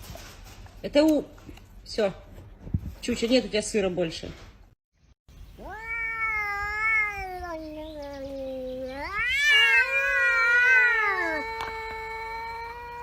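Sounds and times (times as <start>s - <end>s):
cat yowling: 5.6s - 13.0s.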